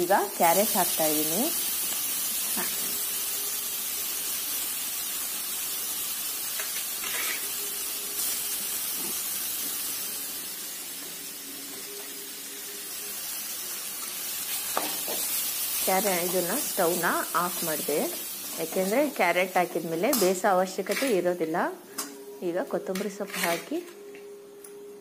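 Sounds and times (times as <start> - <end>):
vegetables sizzling in a pan: 0.0 - 23.9
steel spoon scraping a pan: 6.6 - 7.6, 20.0 - 21.3, 23.0 - 23.9.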